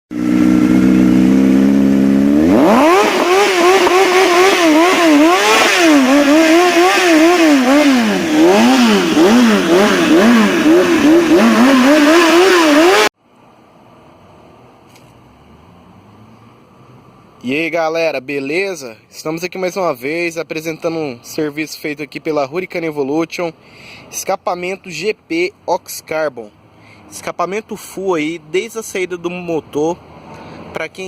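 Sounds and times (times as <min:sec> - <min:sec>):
motorcycle engine revving: 0:00.1 - 0:13.1.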